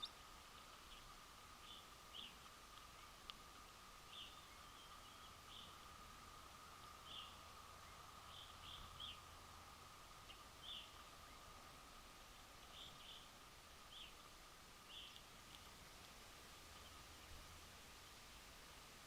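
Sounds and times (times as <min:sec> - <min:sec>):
faint steady hum: 0:00.0 - 0:19.0
bird chip calls: 0:14.9 - 0:15.6.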